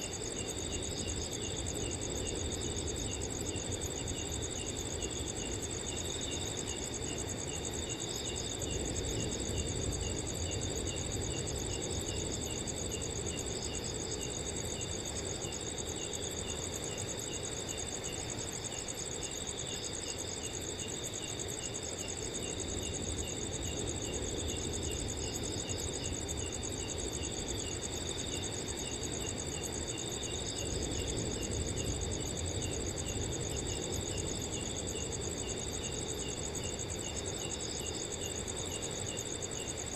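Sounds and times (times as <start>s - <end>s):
cricket chirping: 0.0s - 39.9s
crickets trilling: 0.0s - 39.9s.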